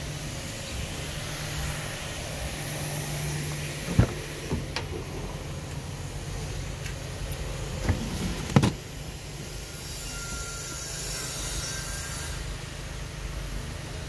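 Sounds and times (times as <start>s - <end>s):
car engine idling hum: 0.0s - 9.8s.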